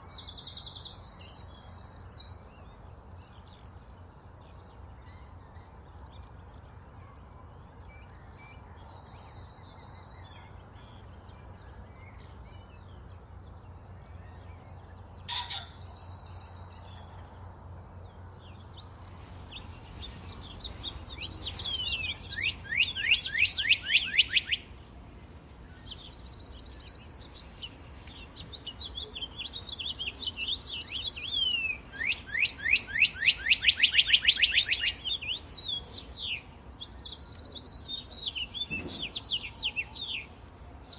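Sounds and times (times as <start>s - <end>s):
songbirds buzzy trills: 0.0s - 40.9s
bird song of rapid falling notes: 7.7s - 25.0s, 25.6s - 40.9s.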